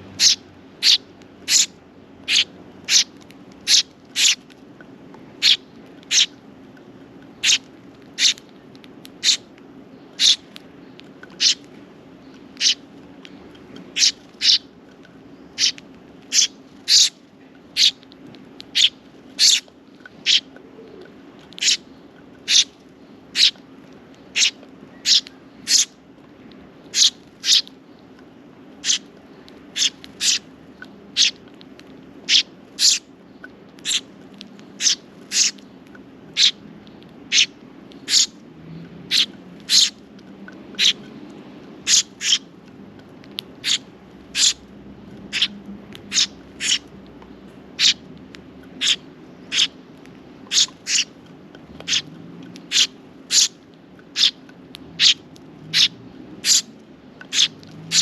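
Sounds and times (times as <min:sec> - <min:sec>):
faint low hum: 0:00.0 - 0:58.0
sparrow cheeping: 0:00.1 - 0:04.4, 0:05.4 - 0:06.4, 0:07.4 - 0:08.4, 0:09.2 - 0:10.5, 0:11.4 - 0:11.7, 0:12.3 - 0:12.8, 0:13.9 - 0:14.7, 0:15.4 - 0:17.2, 0:17.8 - 0:18.0, 0:18.7 - 0:23.6, 0:24.2 - 0:25.9, 0:26.9 - 0:27.8, 0:28.8 - 0:29.1, 0:29.7 - 0:30.5, 0:31.1 - 0:31.4, 0:32.3 - 0:34.1, 0:34.8 - 0:35.6, 0:36.3 - 0:36.6, 0:37.3 - 0:38.4, 0:39.1 - 0:40.0, 0:40.8 - 0:41.1, 0:41.8 - 0:42.5, 0:43.6 - 0:44.6, 0:45.3 - 0:46.9, 0:47.8 - 0:48.1, 0:48.7 - 0:49.8, 0:50.5 - 0:51.1, 0:51.9 - 0:54.4, 0:55.0 - 0:58.0.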